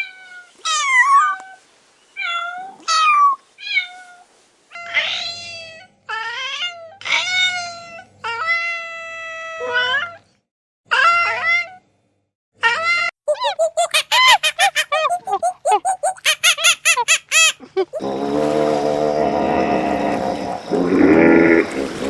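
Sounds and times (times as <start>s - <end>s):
rapid short cat calls: 13.3s - 18.0s.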